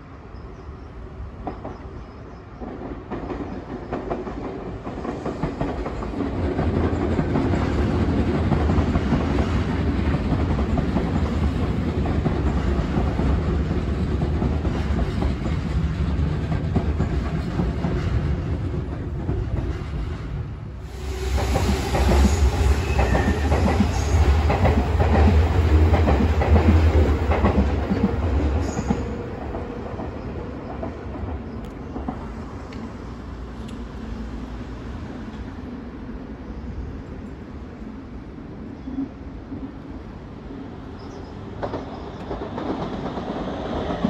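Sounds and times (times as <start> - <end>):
electric train running: 21.0 - 29.6.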